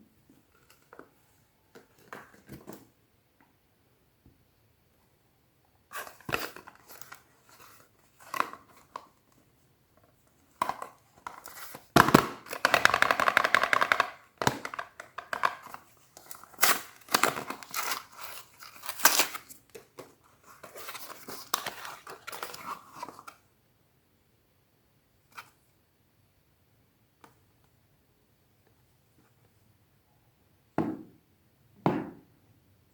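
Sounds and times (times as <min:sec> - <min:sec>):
wrapper tearing: 0:16.3 - 0:19.6.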